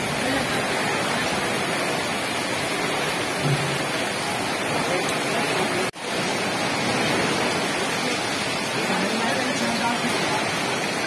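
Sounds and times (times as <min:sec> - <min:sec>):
torrential rain on a street: 0:00.0 - 0:11.0.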